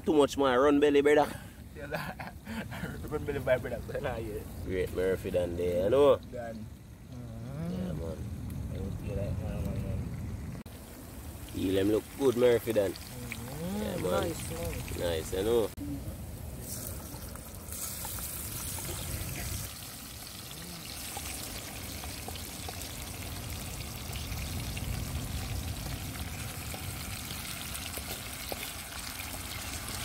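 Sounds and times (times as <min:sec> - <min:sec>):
fish frying in oil: 0:10.7 - 0:15.8, 0:16.6 - 0:30.0.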